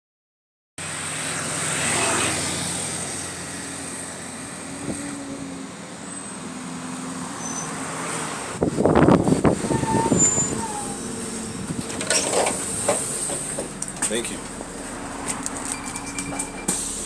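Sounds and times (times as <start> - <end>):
bus diesel engine running: 0.8 - 17.0
leaking exhaust chuffing: 8.5 - 17.0.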